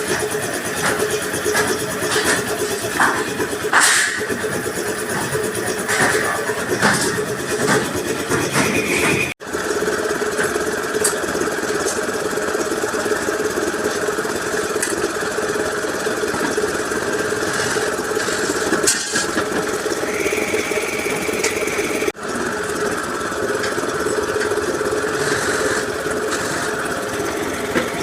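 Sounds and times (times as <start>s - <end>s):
motor droning: 19.6s - 28.0s.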